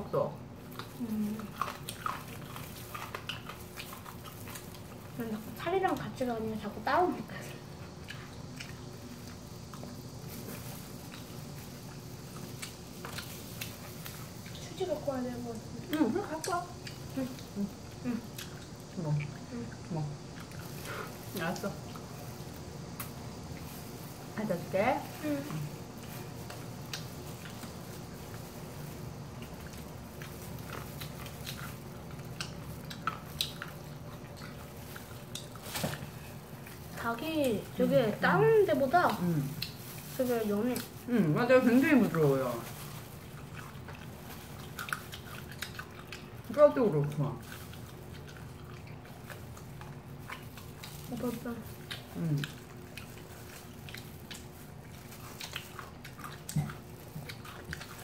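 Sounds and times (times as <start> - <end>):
crust crackling: 0.0 - 58.0
low room hum: 0.0 - 58.0
chewing crispy chicken: 0.4 - 58.0.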